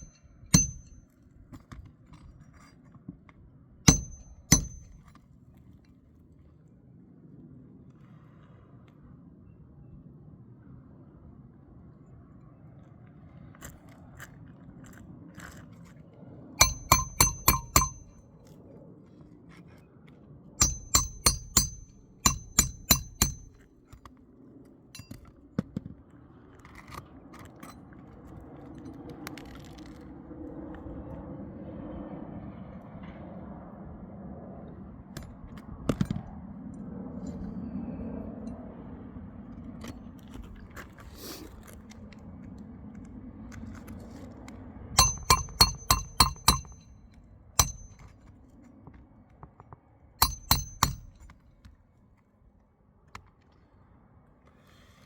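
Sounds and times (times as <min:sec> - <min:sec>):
hammer striking nails: 0:00.0 - 0:01.0, 0:03.9 - 0:05.0, 0:16.6 - 0:18.2, 0:20.6 - 0:23.6, 0:45.0 - 0:46.9, 0:47.6 - 0:48.1, 0:50.2 - 0:51.3.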